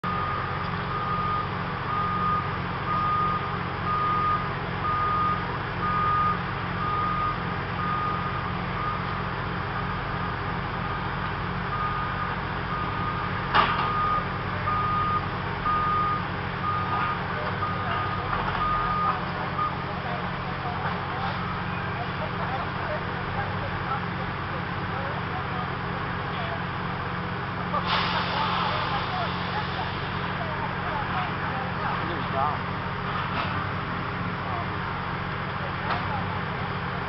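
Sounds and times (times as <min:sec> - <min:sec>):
backup alarm beeping: 0:00.0 - 0:09.2, 0:13.9 - 0:19.9
low engine rumble: 0:00.0 - 0:37.0.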